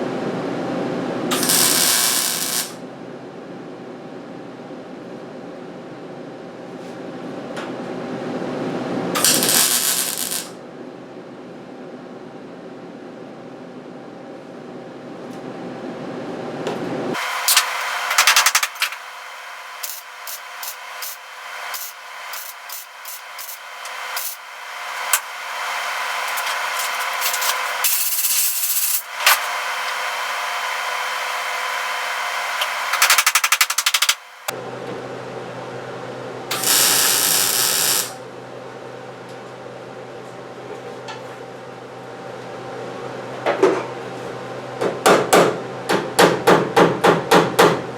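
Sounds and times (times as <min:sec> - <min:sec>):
welding arc crackling hiss: 0:01.3 - 0:02.8, 0:09.2 - 0:10.6, 0:17.2 - 0:34.5, 0:36.5 - 0:38.2
steady hum: 0:17.1 - 0:38.8
power tool grinding sheet metal: 0:19.6 - 0:34.3, 0:36.5 - 0:38.2.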